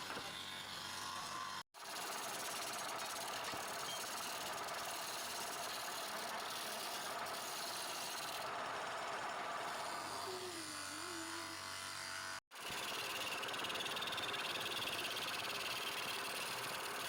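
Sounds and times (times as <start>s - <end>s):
lathe tool scraping spinning wood: 0.0s - 17.0s
low motor hum: 8.4s - 12.4s.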